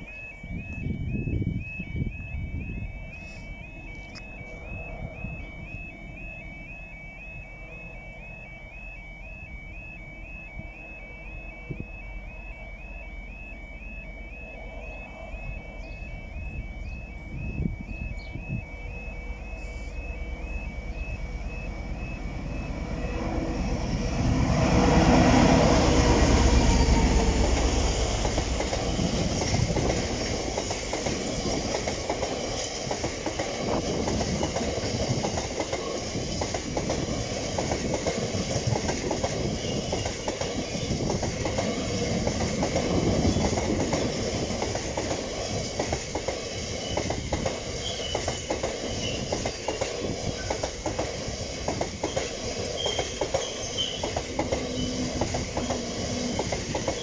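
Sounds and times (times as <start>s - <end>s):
diesel locomotive passing: 0.0s - 57.0s
train wagons rumbling and clattering: 14.7s - 57.0s.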